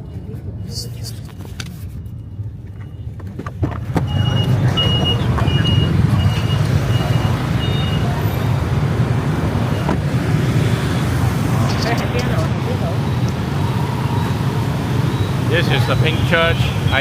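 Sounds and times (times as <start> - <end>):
street traffic rumble: 0.0 - 17.0
high-pitched electronic beeps: 4.1 - 8.3.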